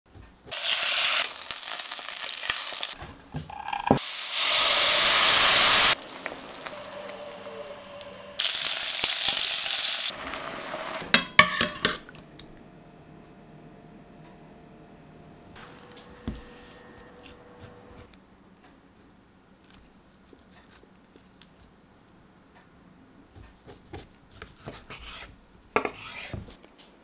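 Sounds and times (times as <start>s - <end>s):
food sizzling in a hot pan: 0.5s - 3.0s, 4.0s - 11.9s.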